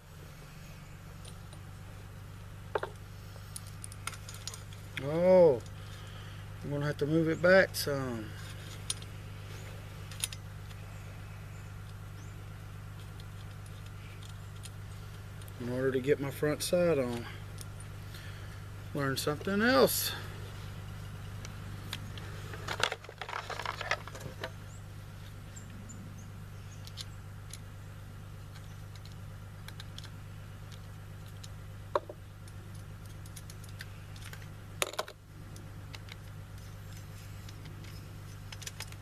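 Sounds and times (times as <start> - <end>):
low hum: 0.0 - 39.0
metal parts clicking and tapping: 10.1 - 10.4, 13.0 - 14.8, 36.9 - 39.0.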